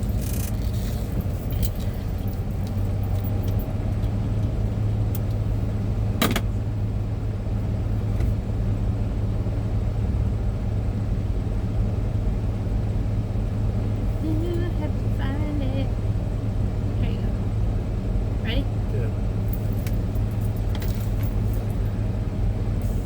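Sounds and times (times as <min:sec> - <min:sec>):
road noise: 0:00.0 - 0:23.0
truck engine drone: 0:00.0 - 0:23.0.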